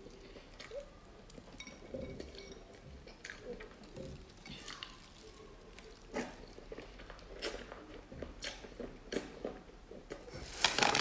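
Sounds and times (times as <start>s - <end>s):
wet chewing: 0.0s - 10.3s
mouth clicks and smacks: 6.0s - 10.3s.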